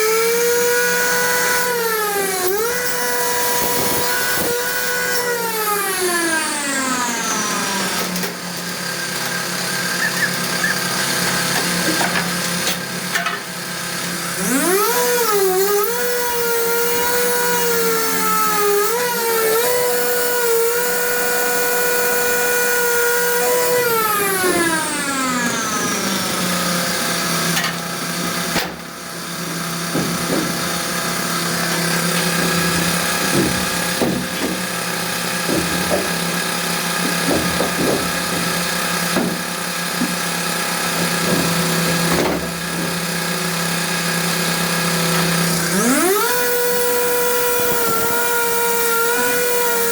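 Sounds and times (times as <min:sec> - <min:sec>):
power tool motor whirring: 0:00.0 - 0:49.9
short knocks: 0:31.7 - 0:40.2, 0:41.0 - 0:43.1.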